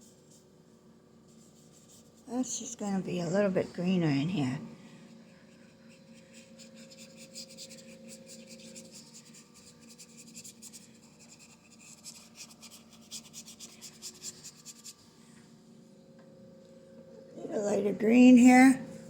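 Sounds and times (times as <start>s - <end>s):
paintbrush scratching on canvas: 1.3s - 3.4s, 5.2s - 15.1s.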